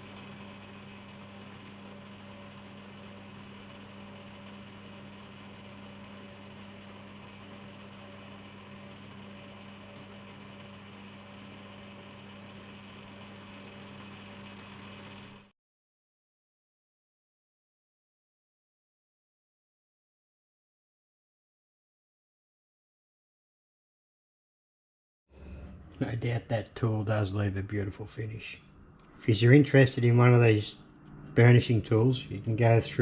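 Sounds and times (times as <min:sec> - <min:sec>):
metal lathe humming: 0:00.0 - 0:15.5, 0:28.4 - 0:33.0.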